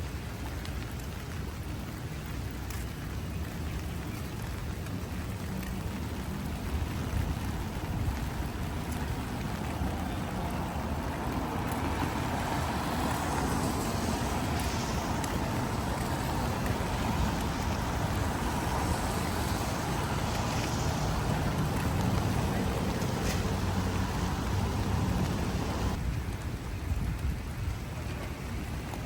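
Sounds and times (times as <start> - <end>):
heavy rain: 0.0 - 29.0
wind: 0.0 - 29.0
broad hiss: 10.4 - 26.0.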